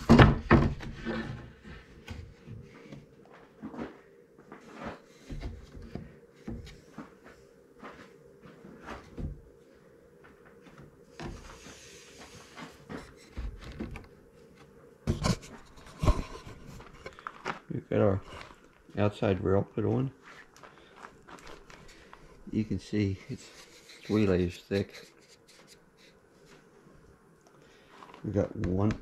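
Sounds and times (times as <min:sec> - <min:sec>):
wooden boards knocking: 0:00.0 - 0:01.2.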